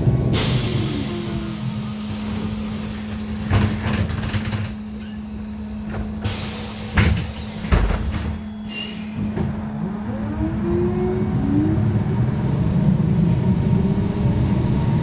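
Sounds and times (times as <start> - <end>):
air hiss from pneumatics: 4.6 - 9.4
body rattles and knocks: 7.0 - 8.6.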